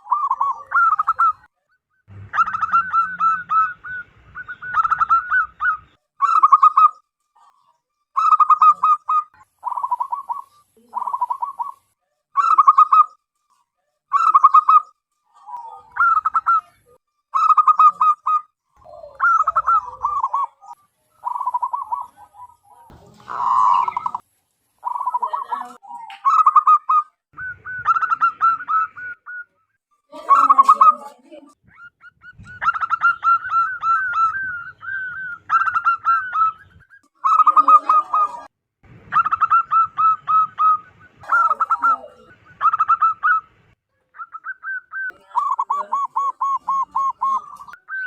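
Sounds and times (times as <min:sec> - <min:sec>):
harsh noisy bird call: 0:00.0 - 0:07.0, 0:15.8 - 0:29.5, 0:31.7 - 0:48.0
doves cooing: 0:00.0 - 0:13.2, 0:14.1 - 0:48.0.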